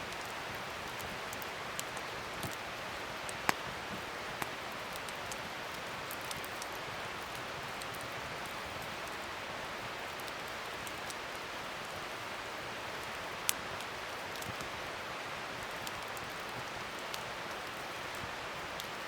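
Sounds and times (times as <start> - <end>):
wood fire hissing and crackling: 0.0 - 19.0.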